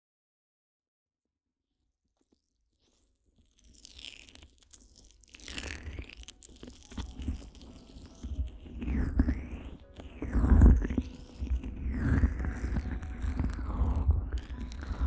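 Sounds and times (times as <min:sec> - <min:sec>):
wet rubbing and crackling on ear: 0:02.2 - 0:15.0.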